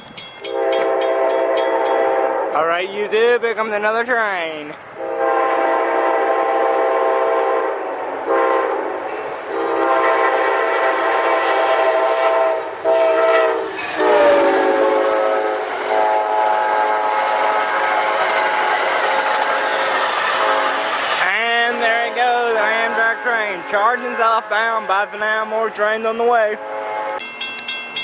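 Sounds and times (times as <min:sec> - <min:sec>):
passing train rail noise: 0:00.0 - 0:28.0
locomotive air horn blasts: 0:00.5 - 0:02.6, 0:05.0 - 0:08.9, 0:09.5 - 0:21.0, 0:21.6 - 0:25.1, 0:26.5 - 0:27.2.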